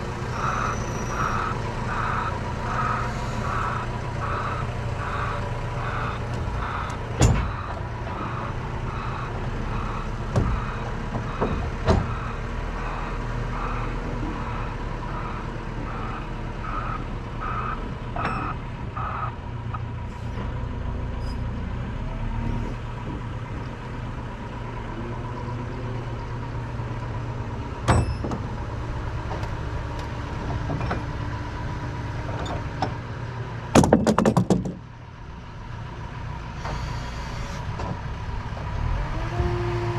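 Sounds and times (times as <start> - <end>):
lorry engine running: 0.0 - 21.1
reversing alarm beeping: 0.3 - 19.3
sharp knocks: 33.7 - 34.8.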